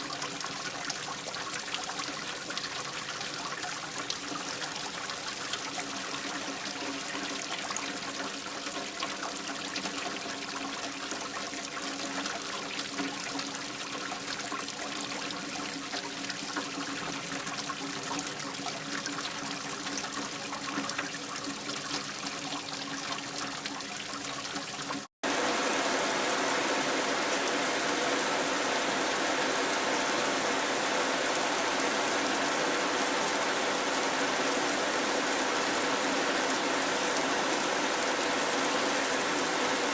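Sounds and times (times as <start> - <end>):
rain falling: 0.0 - 11.4, 25.2 - 39.9
water trickling: 0.0 - 39.9.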